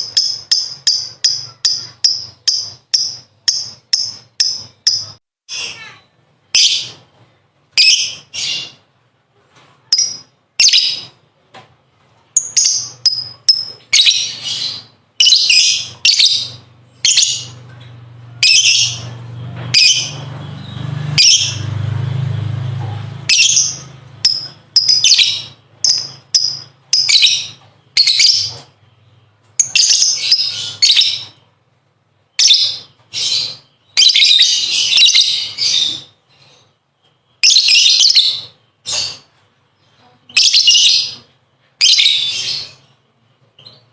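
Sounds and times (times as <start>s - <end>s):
lovebird chattering: 0.0s - 5.9s, 12.4s - 17.6s, 23.2s - 28.8s.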